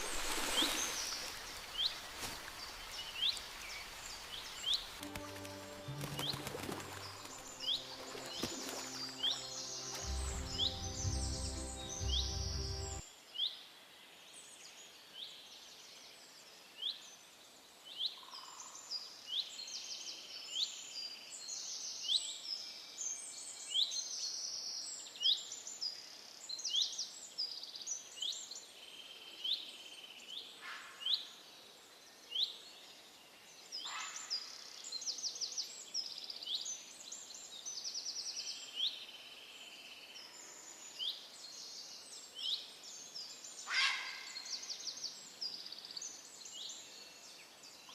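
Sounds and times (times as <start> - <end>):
songbirds chirping: 0.7 - 13.0.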